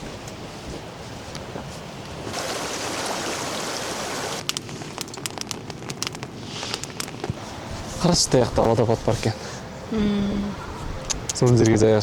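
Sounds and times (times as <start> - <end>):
rushing water: 2.2 - 4.5.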